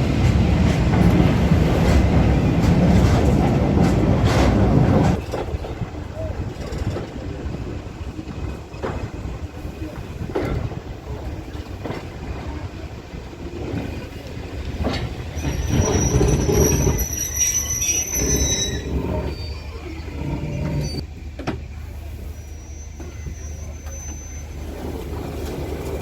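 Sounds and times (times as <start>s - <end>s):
train knocks: 0.0s - 21.8s
train rumbling on track: 0.0s - 26.0s
high wheel squeal: 15.3s - 21.1s, 22.2s - 25.2s.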